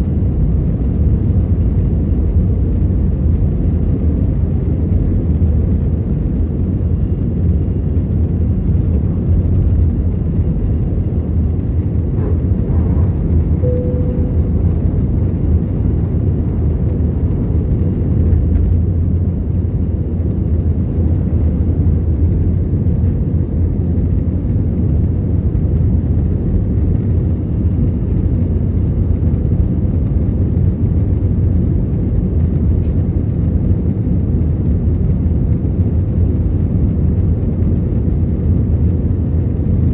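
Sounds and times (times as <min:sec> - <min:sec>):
jet engine rumble in cabin: 0:00.0 - 0:39.9
faint tone: 0:12.2 - 0:15.8.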